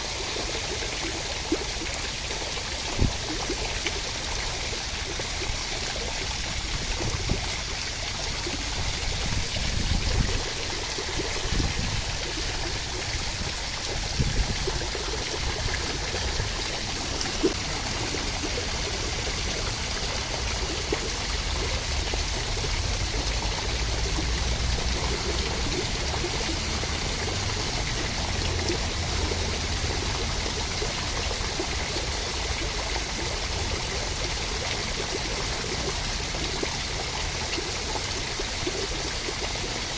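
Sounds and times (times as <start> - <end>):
steady rain: 11.7 - 39.9.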